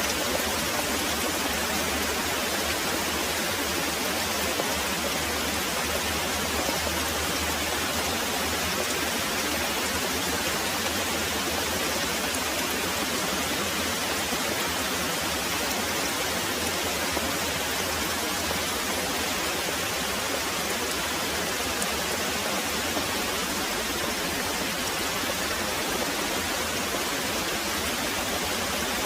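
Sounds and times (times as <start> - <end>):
heavy rain pouring: 0.0 - 29.0.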